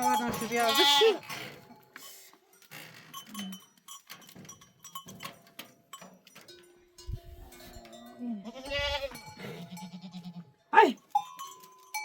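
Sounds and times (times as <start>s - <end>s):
livestock bleating: 0.2s - 1.4s, 8.2s - 10.6s.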